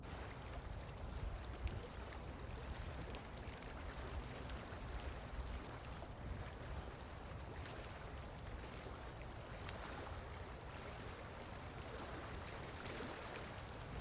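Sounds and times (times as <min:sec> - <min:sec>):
wind rumbling on microphone: 0:00.0 - 0:14.0
faint high ticks: 0:00.8 - 0:04.6.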